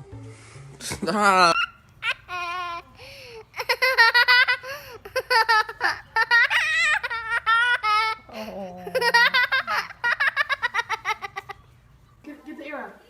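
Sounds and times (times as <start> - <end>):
baby giggling: 0.8 - 11.6.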